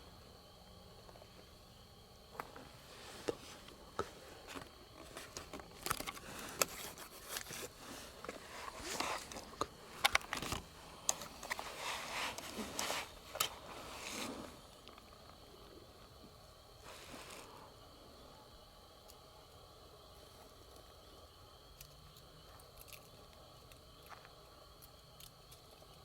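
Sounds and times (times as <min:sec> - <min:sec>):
rustling and crinkling in a tent: 0:02.2 - 0:18.0.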